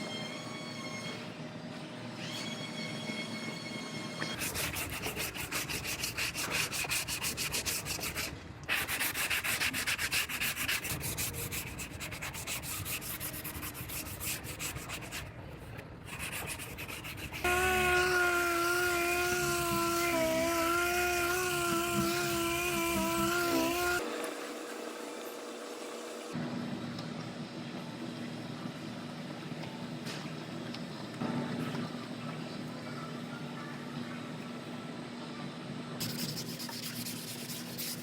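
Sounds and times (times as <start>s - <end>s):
sanding on car body panel: 4.4s - 15.3s, 16.1s - 24.0s, 36.0s - 38.0s.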